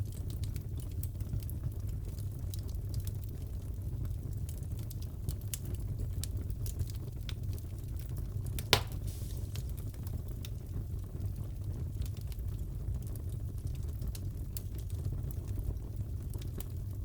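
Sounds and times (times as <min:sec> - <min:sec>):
fireplace fire crackling: 0:00.0 - 0:17.0
fire pop: 0:08.6 - 0:10.5.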